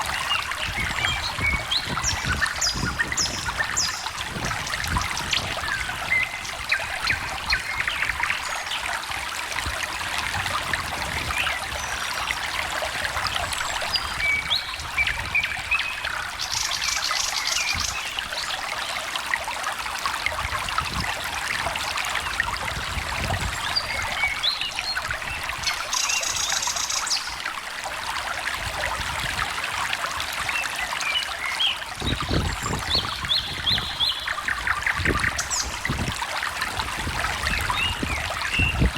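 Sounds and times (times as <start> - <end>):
stream trickling: 0.0 - 38.9
birds chirping: 31.4 - 36.0.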